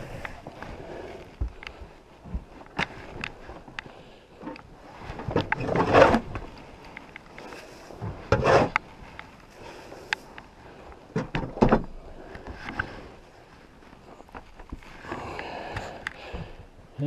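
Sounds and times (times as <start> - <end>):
knocks and clattering bumps: 11.1 - 12.8.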